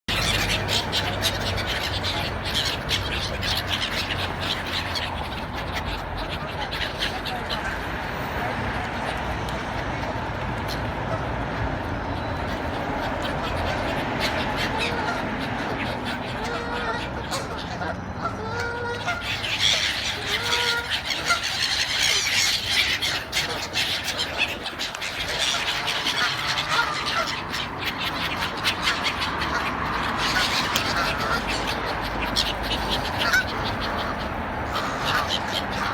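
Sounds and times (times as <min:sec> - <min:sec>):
bird calling rapidly: 0:00.1 - 0:07.7, 0:18.6 - 0:35.9.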